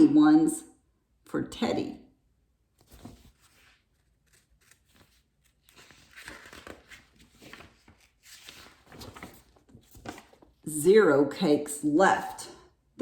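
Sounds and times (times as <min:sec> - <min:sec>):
paper pages rustling: 0:02.8 - 0:10.6.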